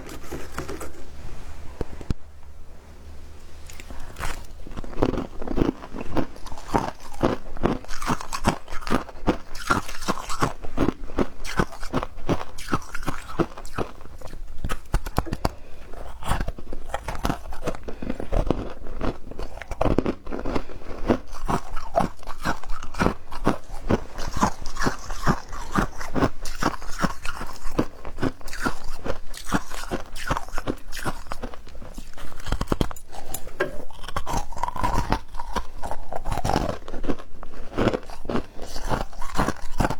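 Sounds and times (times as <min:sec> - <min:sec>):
ice being chewed: 0:00.0 - 0:02.1, 0:03.6 - 0:39.9.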